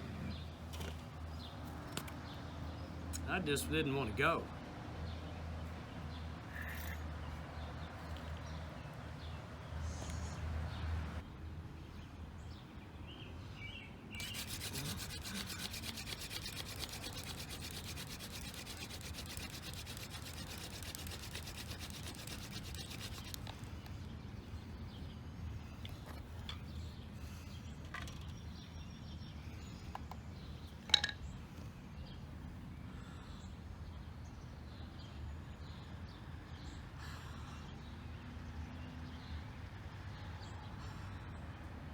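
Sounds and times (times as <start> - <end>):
hand drill friction rasping: 14.2 - 23.9.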